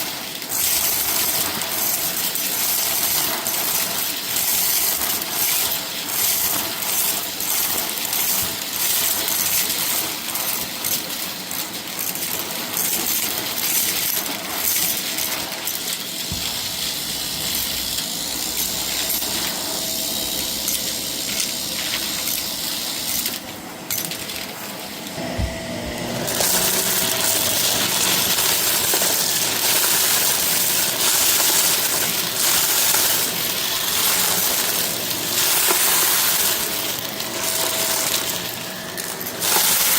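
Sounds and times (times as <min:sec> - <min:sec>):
debris rattling in vacuum: 0:00.0 - 0:39.9
vacuum cleaner motor hum: 0:14.3 - 0:39.9.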